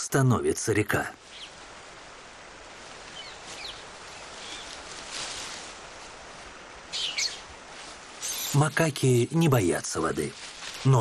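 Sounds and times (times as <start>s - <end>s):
steady outdoor hiss: 0.0s - 11.0s
high bird chirps: 6.9s - 7.5s.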